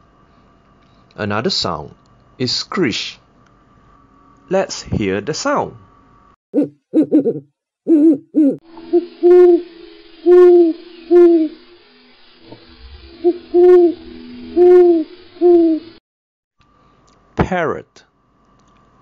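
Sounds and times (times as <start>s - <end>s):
owl hooting: 6.6s - 11.8s, 12.5s - 16.0s.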